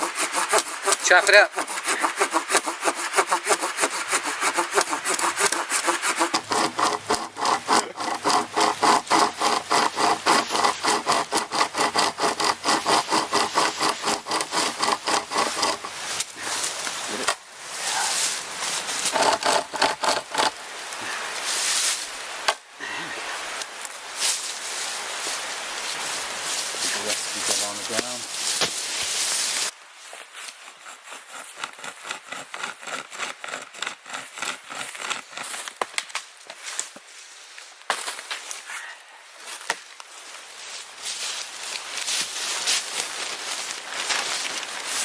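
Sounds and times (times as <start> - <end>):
handsaw cutting log: 0.0 - 20.8, 21.7 - 22.6, 25.8 - 29.7, 30.6 - 35.9.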